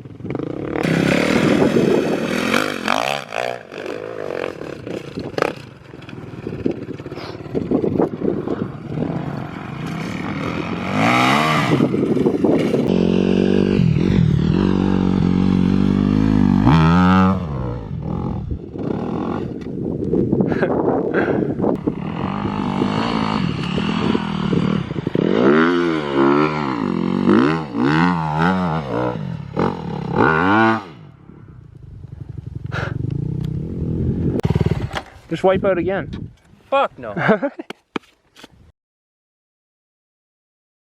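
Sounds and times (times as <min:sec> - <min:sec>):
dirt bike engine revving: 0:00.2 - 0:19.6, 0:21.8 - 0:31.1, 0:32.3 - 0:35.2.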